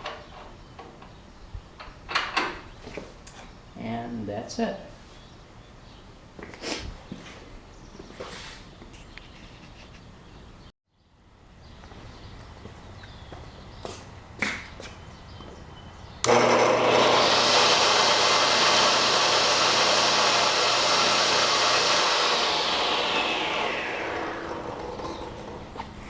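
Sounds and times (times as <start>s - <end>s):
table saw motor running: 16.2s - 26.0s.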